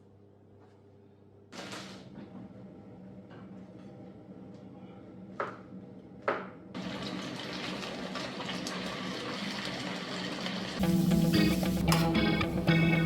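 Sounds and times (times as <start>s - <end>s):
water running: 6.8s - 13.0s.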